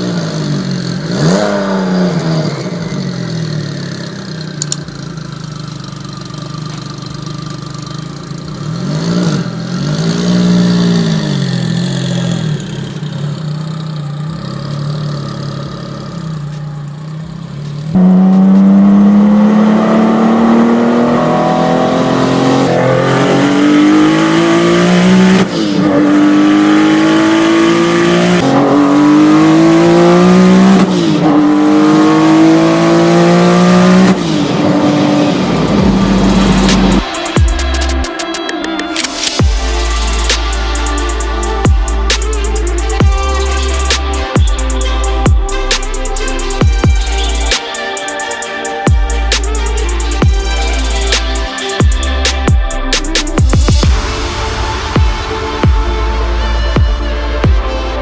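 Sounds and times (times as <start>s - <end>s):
car engine revving and accelerating: 0.0s - 47.9s, 48.8s - 58.0s.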